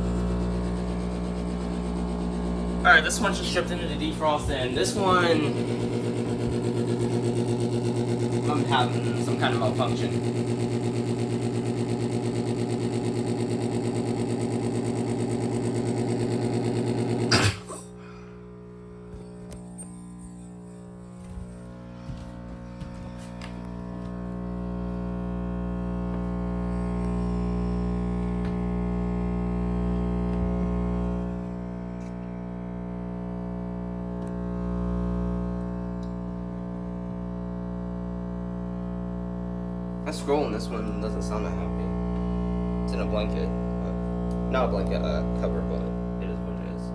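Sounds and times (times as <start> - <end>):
heat pump humming: 0.0 - 32.0, 38.1 - 46.9
man talking: 2.8 - 6.0, 8.4 - 10.3, 40.1 - 42.0, 42.9 - 46.9.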